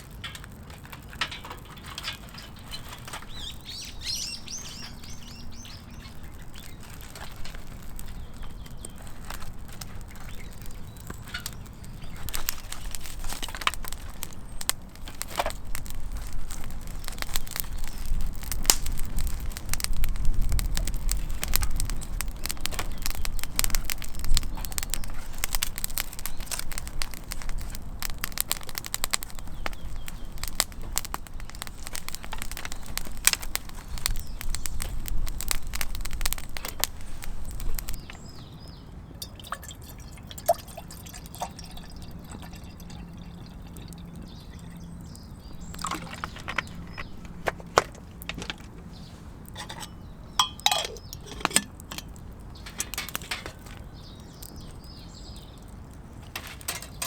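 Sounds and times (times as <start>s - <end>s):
birds chirping: 0.0s - 57.0s
campfire crackling and snapping: 0.0s - 57.0s.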